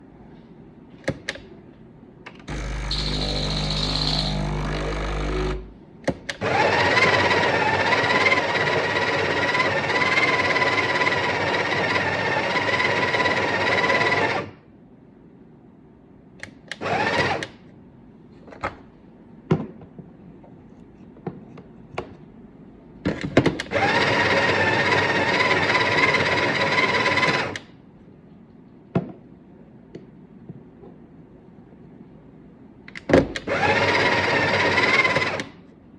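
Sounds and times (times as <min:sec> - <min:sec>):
coffee machine grinding beans: 0:02.5 - 0:05.6, 0:23.8 - 0:27.5
low humming: 0:02.5 - 0:05.9.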